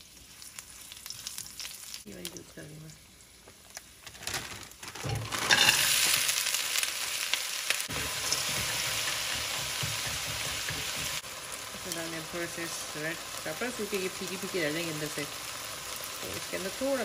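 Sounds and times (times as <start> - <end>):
food sizzling in hot oil: 0.0 - 17.0
spatula stirring in wok: 7.9 - 11.2.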